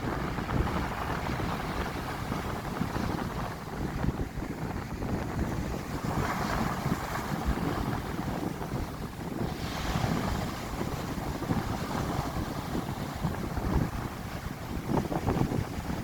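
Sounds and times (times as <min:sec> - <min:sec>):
wind buffeting microphone: 0:00.0 - 0:16.0
sea surf breaking: 0:05.4 - 0:16.0.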